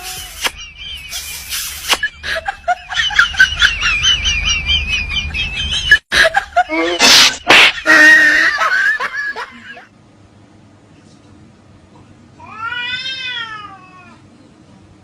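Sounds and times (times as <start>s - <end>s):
cat meowing: 12.4s - 14.2s.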